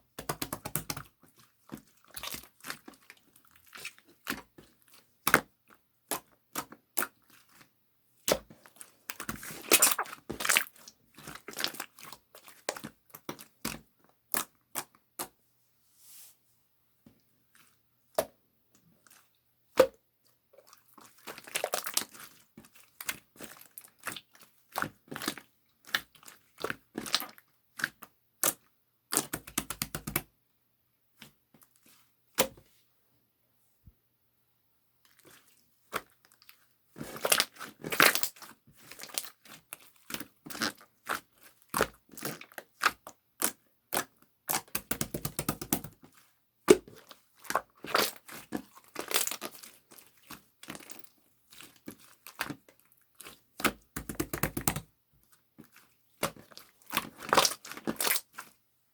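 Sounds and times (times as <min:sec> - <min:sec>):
slime crackling: 0:09.6 - 0:10.7.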